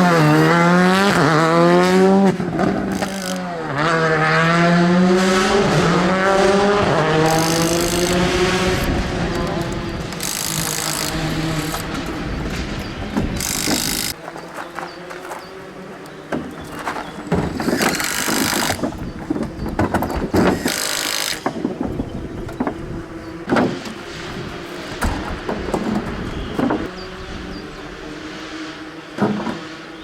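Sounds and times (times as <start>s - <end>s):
rally car engine running: 0.0s - 15.0s.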